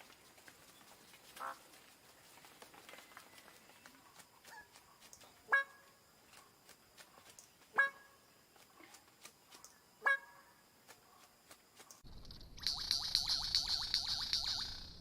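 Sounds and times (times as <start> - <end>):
faint scattered clicks: 11.8 - 15.0.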